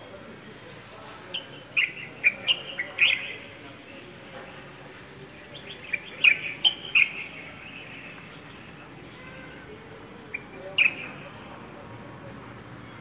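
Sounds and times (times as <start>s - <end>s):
small birds chirping: 0.7s - 4.1s, 5.3s - 9.0s, 10.3s - 11.3s.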